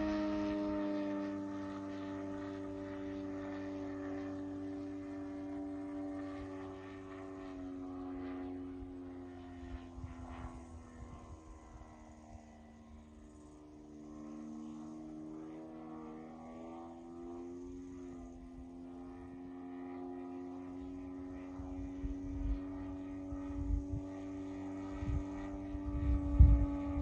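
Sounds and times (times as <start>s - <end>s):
model plane engine running: 0.0s - 27.0s
wind buffeting the microphone: 23.3s - 27.0s.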